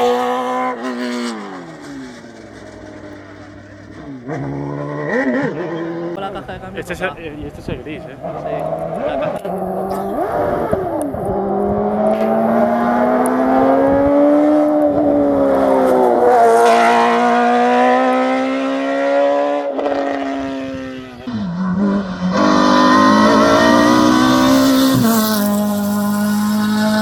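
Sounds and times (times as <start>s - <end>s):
race car engine revving: 0.0s - 6.2s, 8.1s - 27.0s.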